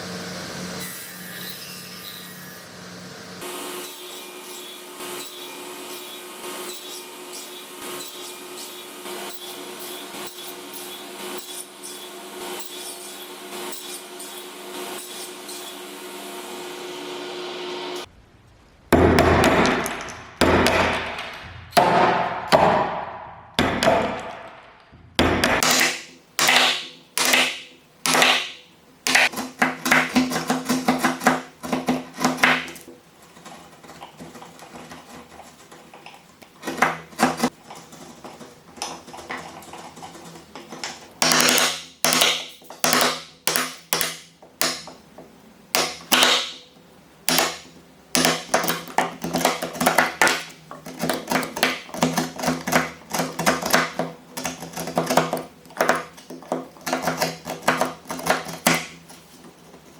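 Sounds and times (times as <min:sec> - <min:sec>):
hammering on wood: 0:19.0 - 0:32.7, 0:47.3 - 0:59.0.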